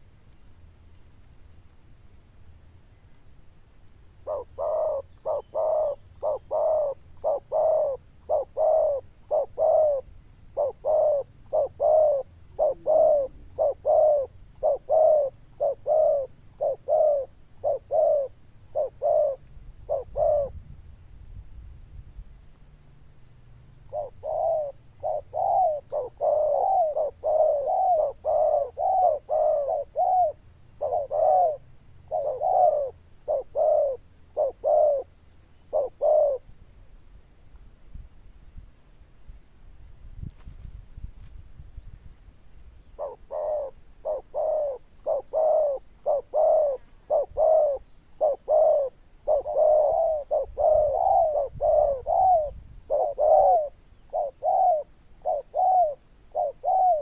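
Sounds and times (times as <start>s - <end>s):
dove cooing: 4.2s - 20.8s, 23.8s - 36.5s, 42.9s - 57.0s.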